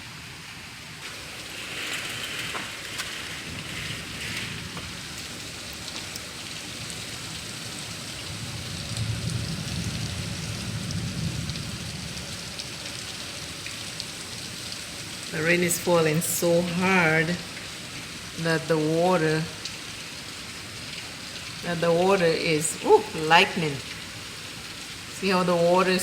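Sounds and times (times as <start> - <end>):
heavy rain pouring: 0.0 - 26.0
water streaming off rain chain: 1.0 - 26.0
low thunder rumble: 1.1 - 5.6, 8.3 - 12.6.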